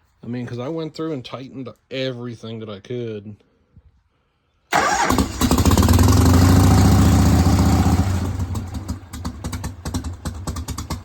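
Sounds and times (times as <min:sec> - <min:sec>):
motorcycle electric starter cranking: 0:04.8 - 0:11.0.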